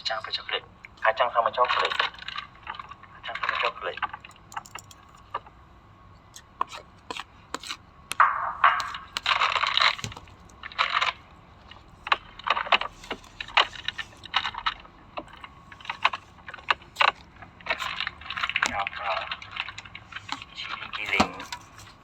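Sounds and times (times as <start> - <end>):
items set down clicking: 4.3 - 5.4, 8.8 - 10.6, 19.7 - 22.0.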